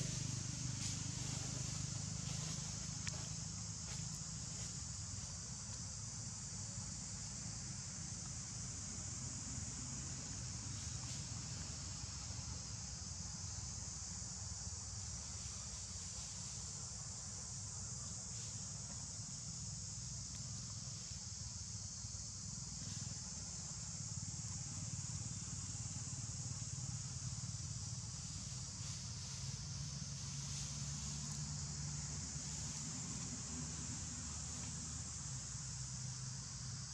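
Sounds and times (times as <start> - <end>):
low steady rumble: 0.0 - 14.1.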